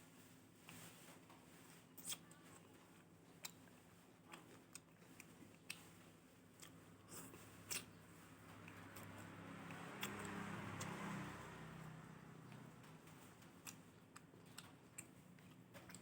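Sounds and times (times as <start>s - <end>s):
person chewing and biting: 1.9s - 2.3s, 6.6s - 8.0s, 13.6s - 16.0s.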